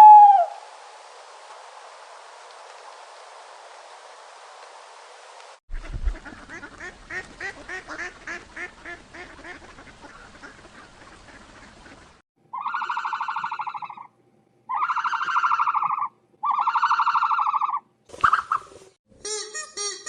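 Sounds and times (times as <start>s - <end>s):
ducks quacking: 5.7s - 14.0s
long buzzy animal calls: 14.7s - 18.6s.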